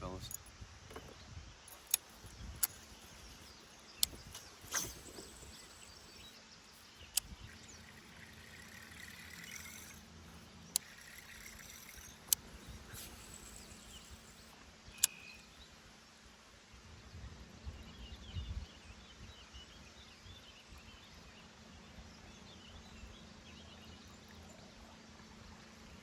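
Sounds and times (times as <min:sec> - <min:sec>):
faint steady hum: 0:00.0 - 0:26.0
sharp brief clicks: 0:01.7 - 0:15.2.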